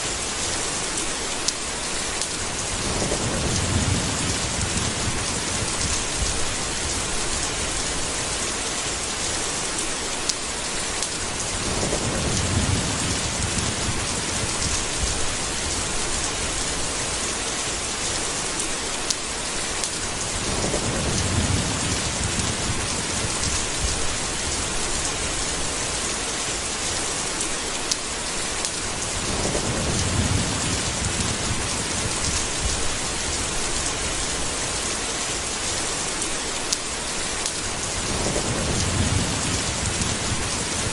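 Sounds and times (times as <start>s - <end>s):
heavy rain: 0.0s - 40.9s
thunder rolling: 2.7s - 7.7s, 11.5s - 17.0s, 20.1s - 25.3s, 29.2s - 34.2s, 38.0s - 40.9s.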